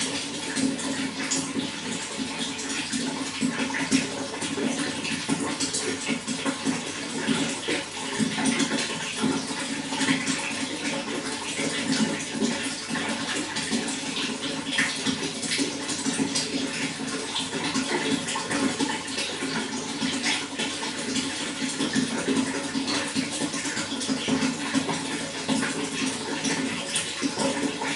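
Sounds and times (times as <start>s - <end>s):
running water rushing: 0.0s - 27.9s.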